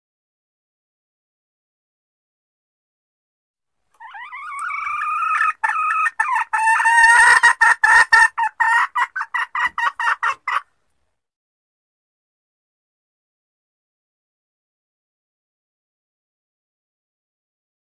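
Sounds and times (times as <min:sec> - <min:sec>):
junglefowl hen calling and clucking: 0:03.9 - 0:10.8.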